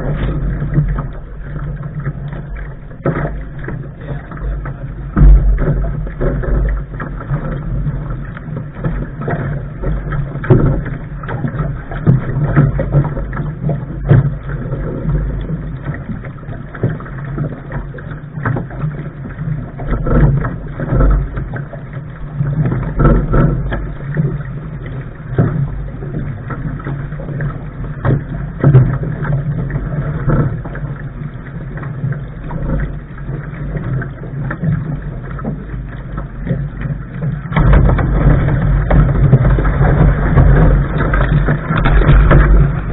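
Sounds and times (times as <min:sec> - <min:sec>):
knocks and splashes: 0:00.0 - 0:42.9
water slapping against boat hull: 0:00.0 - 0:42.9
wind buffeting microphone: 0:36.9 - 0:42.9.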